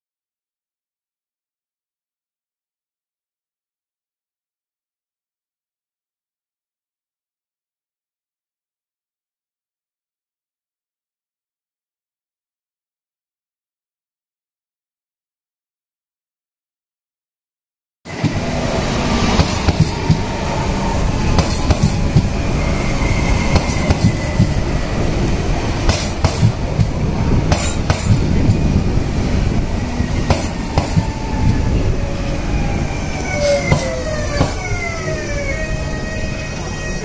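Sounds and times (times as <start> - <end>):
falling whines: 18.1 - 25.7, 29.7 - 37.0
wheels banging on track: 18.1 - 31.8, 33.1 - 35.4
train rumbling on rails: 18.1 - 37.0.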